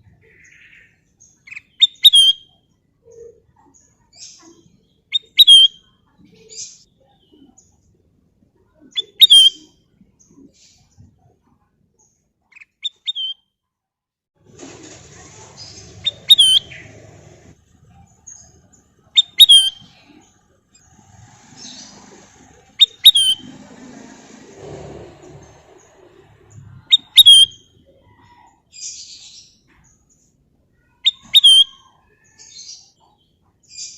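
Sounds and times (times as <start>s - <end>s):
bird whistled calls: 1.8s - 2.5s, 5.1s - 5.8s, 9.0s - 9.7s, 16.0s - 16.8s, 19.2s - 20.0s, 22.8s - 23.4s, 26.8s - 27.7s, 31.0s - 31.9s
faint background murmur: 14.4s - 33.7s.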